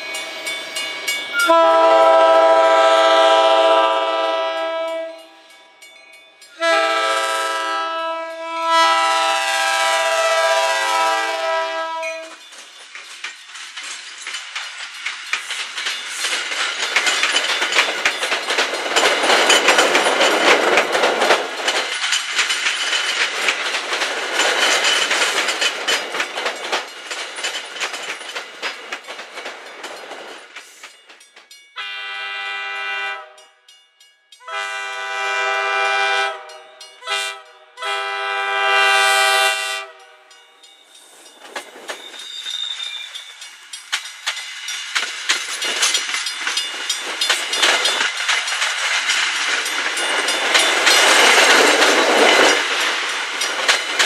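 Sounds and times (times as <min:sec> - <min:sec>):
train horn: 0:01.4 - 0:05.4, 0:06.5 - 0:12.4, 0:31.8 - 0:33.5, 0:34.4 - 0:40.3
train wheels clacking over rail joints: 0:06.5 - 0:31.8, 0:40.6 - 0:54.0.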